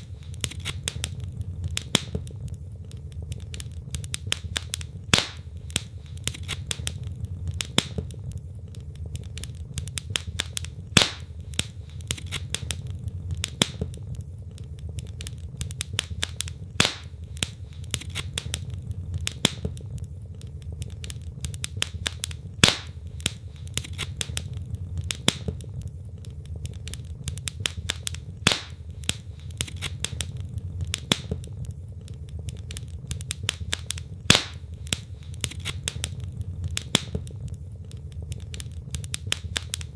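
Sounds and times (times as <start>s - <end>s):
logs crackling in fireplace: 0.0s - 39.9s
low rumble of flames: 0.0s - 39.9s.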